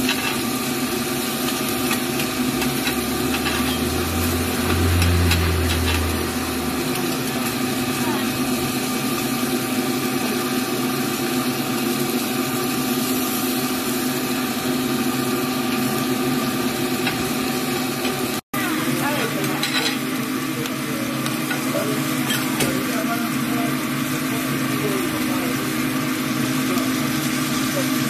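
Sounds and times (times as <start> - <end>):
food sizzling on a griddle: 0.0 - 28.0
metal spatula scraping: 1.5 - 6.9
steady hum: 1.9 - 8.5.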